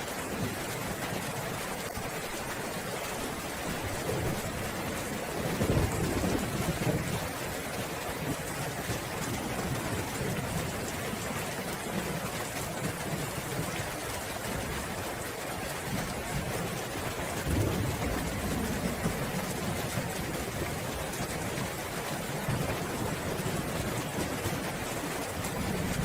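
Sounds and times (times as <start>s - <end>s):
steady rain falling: 0.0s - 26.0s
roll of thunder: 17.4s - 21.4s.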